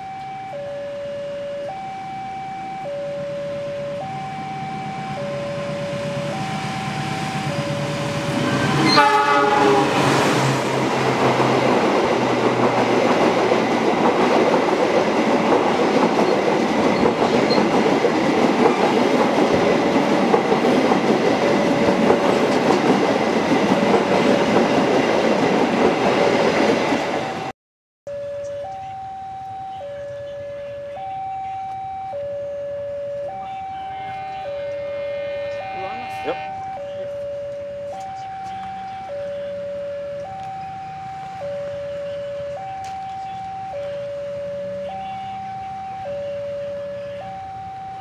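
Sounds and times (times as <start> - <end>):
level crossing two-tone alarm: 0.0 - 9.5, 28.1 - 48.0
diesel locomotive passing: 0.0 - 27.5, 28.1 - 48.0
train horn blast: 8.5 - 10.6, 33.4 - 36.8.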